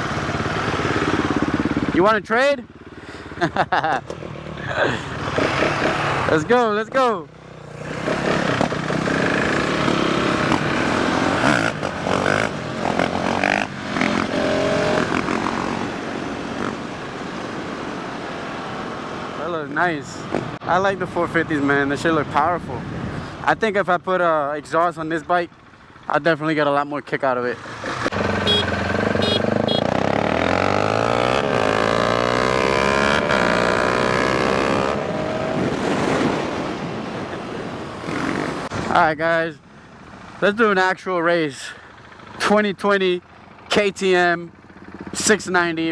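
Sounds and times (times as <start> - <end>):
dirt bike engine revving: 0.0 - 2.1, 5.0 - 6.6, 7.4 - 16.9, 27.6 - 36.9, 38.0 - 38.9.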